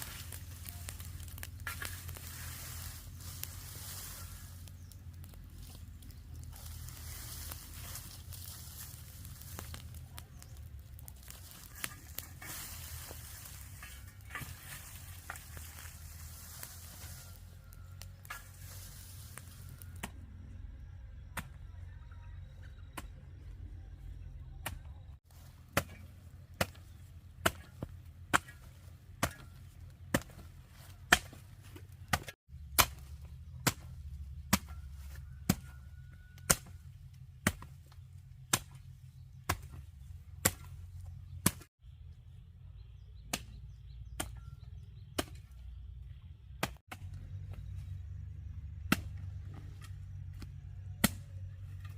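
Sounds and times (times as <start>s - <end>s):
firewood chopping strokes: 0.0s - 20.2s, 24.6s - 41.7s, 43.2s - 45.8s, 46.5s - 51.9s
steady low rumble: 0.0s - 25.6s.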